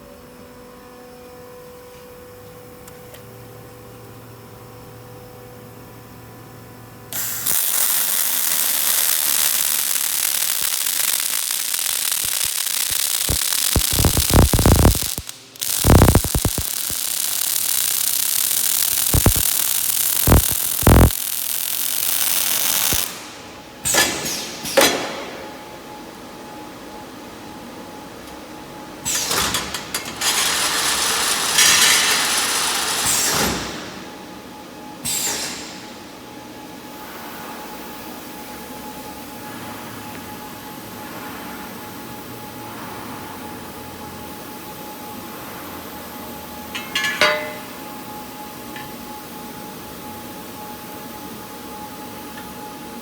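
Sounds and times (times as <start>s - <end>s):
machine humming: 6.7s - 23.9s
welding arc crackling hiss: 7.1s - 25.4s, 29.0s - 34.2s, 46.8s - 48.0s
falling machine whine: 29.2s - 34.1s.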